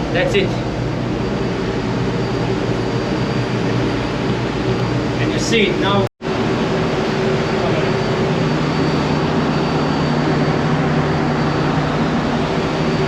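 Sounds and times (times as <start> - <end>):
engine room machinery drone: 0.0 - 13.0.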